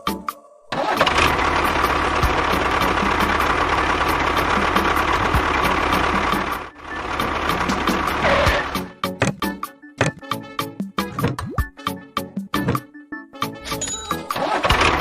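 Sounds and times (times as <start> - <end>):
engine running steadily: 0.8 - 9.5, 14.4 - 15.0.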